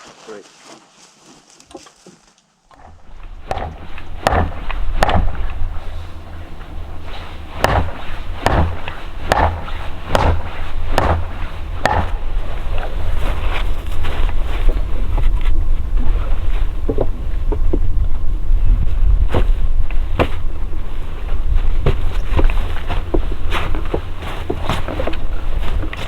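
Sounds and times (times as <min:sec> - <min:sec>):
axe chopping wood: 0:02.8 - 0:06.0, 0:07.4 - 0:12.4
wind rumble on microphone: 0:02.8 - 0:26.0.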